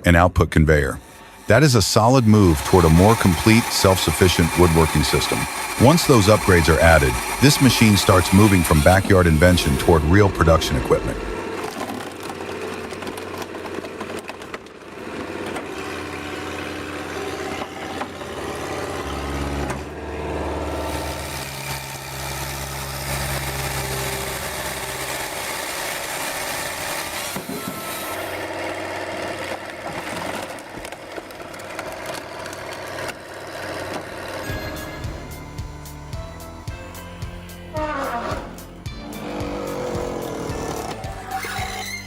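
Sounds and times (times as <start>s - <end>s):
firewood processor machine noise: 0.6s - 42.0s
diesel engine running: 1.0s - 13.7s, 14.6s - 26.2s, 38.4s - 41.6s.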